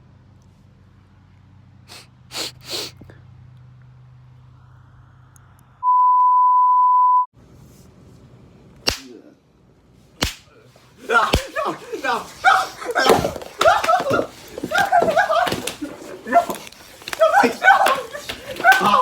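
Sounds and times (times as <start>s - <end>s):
short breathy bursts: 1.9s - 3.1s
low hum: 3.8s - 7.2s
high-pitched censor bleep: 5.8s - 7.3s.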